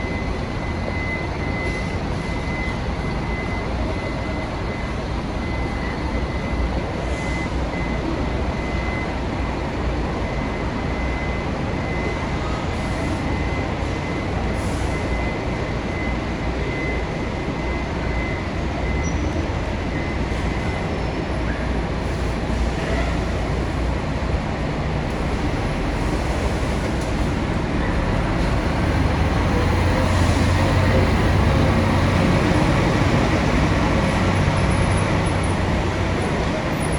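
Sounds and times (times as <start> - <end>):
bus engine running: 0.0 - 36.9
traffic noise: 0.0 - 36.9.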